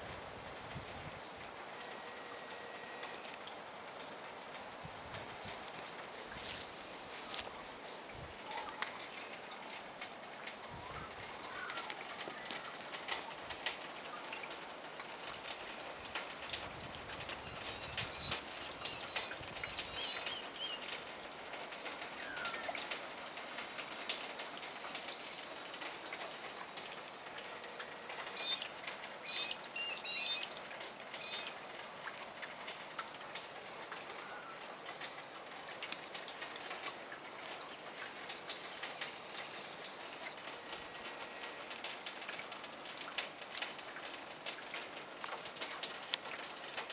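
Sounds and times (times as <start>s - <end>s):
drips and wet snow falling: 0.0s - 46.9s
small birds chirping: 10.7s - 14.7s, 17.2s - 21.4s, 28.2s - 31.6s.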